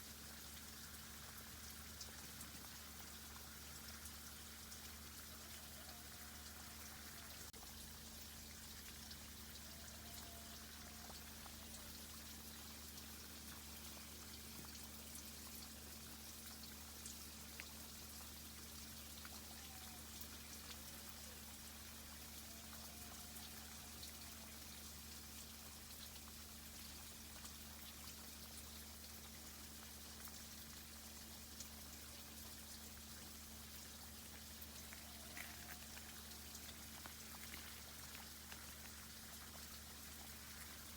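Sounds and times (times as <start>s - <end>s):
water dripping and bubbling: 0.0s - 40.9s
small ticks: 8.9s - 12.1s, 16.4s - 18.3s, 34.2s - 40.9s.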